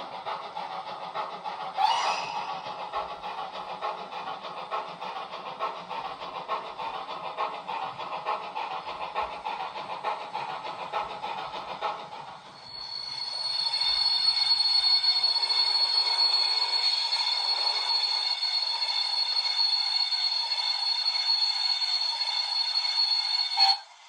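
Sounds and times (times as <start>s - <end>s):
steam chuffing through small speaker: 0.0s - 24.0s
high steady whistle: 1.8s - 2.8s, 12.6s - 24.0s.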